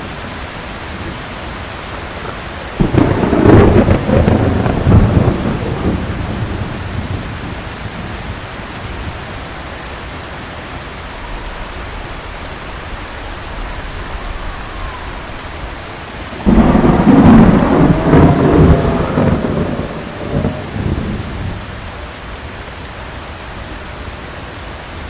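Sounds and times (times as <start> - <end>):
heavy rain: 0.0 - 25.0
rumbling thunderclap: 0.8 - 9.6, 11.0 - 22.3.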